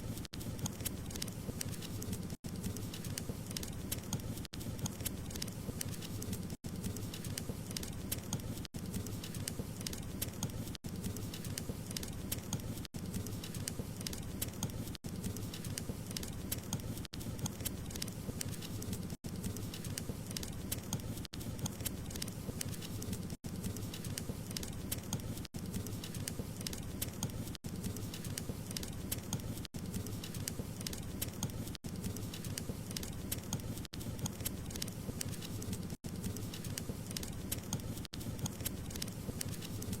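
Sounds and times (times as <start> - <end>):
wood fire crackling and popping: 0.0 - 40.0.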